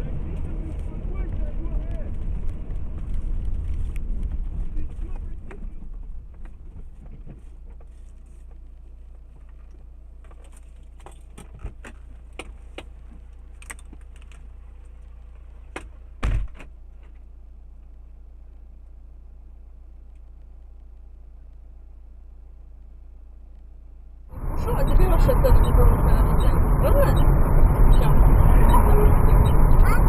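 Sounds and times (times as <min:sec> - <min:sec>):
vehicle humming: 0:00.0 - 0:30.0
light clicks and rattles: 0:00.3 - 0:19.0
loud thump: 0:16.2 - 0:16.7.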